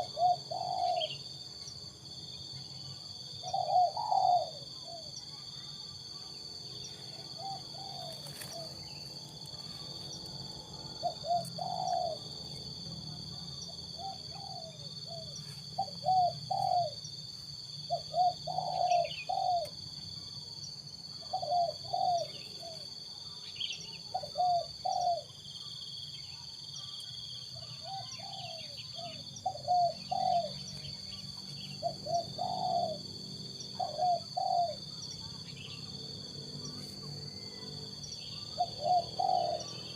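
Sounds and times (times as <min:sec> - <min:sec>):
dove cooing: 0:00.0 - 0:01.4, 0:03.4 - 0:05.1, 0:07.0 - 0:12.5, 0:13.1 - 0:17.0, 0:17.9 - 0:19.8, 0:21.2 - 0:22.8, 0:24.1 - 0:25.3, 0:27.6 - 0:30.7, 0:31.4 - 0:35.0, 0:38.3 - 0:39.9.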